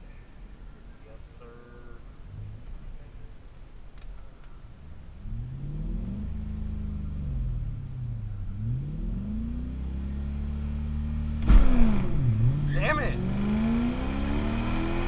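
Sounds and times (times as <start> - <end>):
car engine revving: 5.1 - 15.0.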